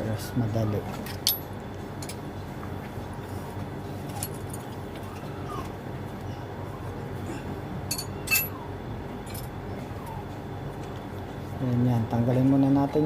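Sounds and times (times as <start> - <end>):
steady low hum: 0.0 - 13.0
metal tools clinking: 1.1 - 2.2, 7.9 - 8.6, 9.3 - 9.5.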